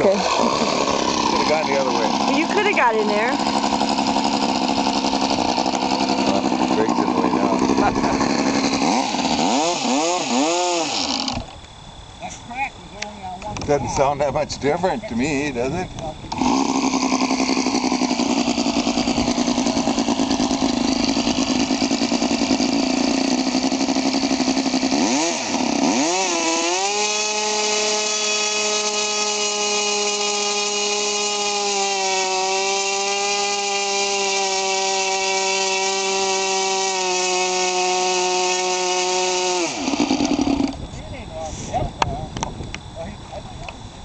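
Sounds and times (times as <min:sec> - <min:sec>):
model aircraft engine whine: 0:00.0 - 0:32.0, 0:33.0 - 0:44.0.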